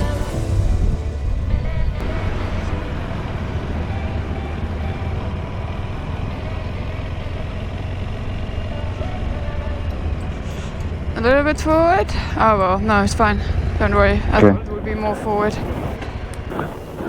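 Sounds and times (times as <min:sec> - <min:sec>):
vehicle engine rumbling: 0:00.3 - 0:17.0.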